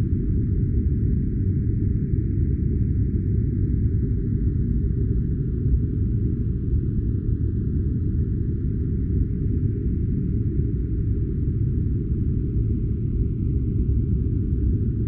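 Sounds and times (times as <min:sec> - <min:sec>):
deep rumbling white noise: 0:00.0 - 0:15.0.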